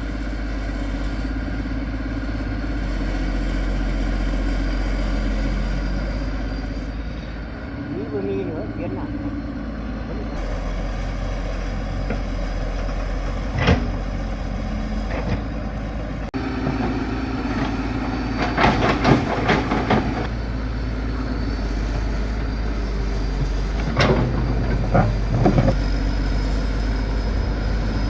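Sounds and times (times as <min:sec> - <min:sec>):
heavy engine running: 0:00.0 - 0:28.0
clanks and clatter: 0:17.6 - 0:20.3, 0:23.4 - 0:25.8.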